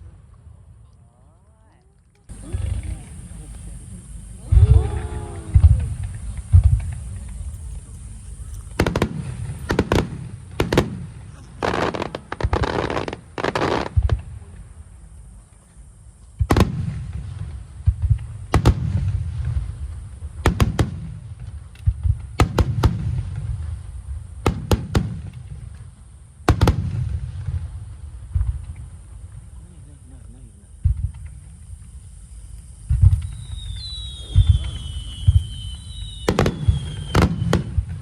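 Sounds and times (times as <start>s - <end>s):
fireworks crackling: 0.0s - 1.1s, 2.0s - 38.0s
fireworks booming: 2.3s - 14.7s, 16.3s - 38.0s.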